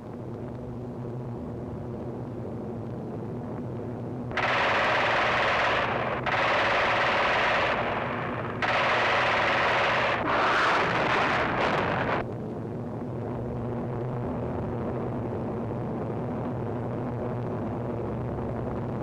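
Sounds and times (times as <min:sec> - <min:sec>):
steady low hum: 0:00.0 - 0:19.0
aircraft guns firing in bursts: 0:04.3 - 0:12.2.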